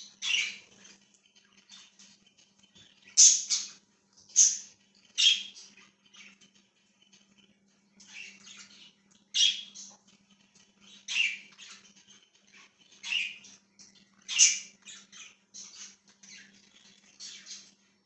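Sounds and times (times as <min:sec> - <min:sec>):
budgies chirping and chattering: 0:00.0 - 0:18.0
faint steady low hum: 0:00.0 - 0:18.0.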